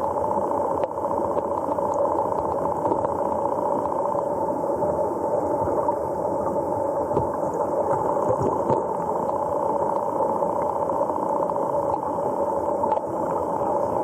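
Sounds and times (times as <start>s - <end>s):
faint ticks: 0.0s - 4.3s, 7.2s - 13.8s.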